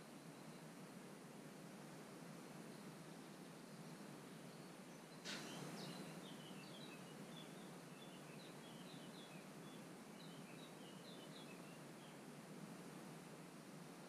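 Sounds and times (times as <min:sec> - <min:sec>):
steady background hiss: 0:00.0 - 0:14.0
faint bird twittering: 0:02.7 - 0:12.2.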